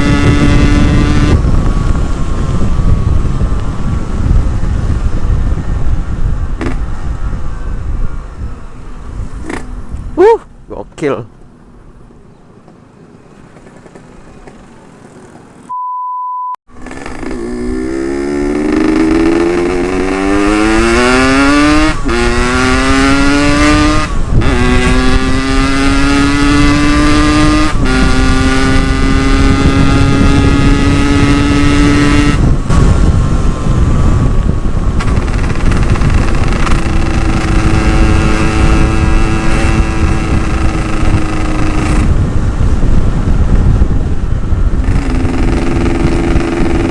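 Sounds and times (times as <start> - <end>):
motorcycle engine accelerating: 0.0 - 8.5, 16.7 - 46.9
wind noise: 0.0 - 15.4, 16.8 - 46.9
electronic beep: 15.7 - 16.6.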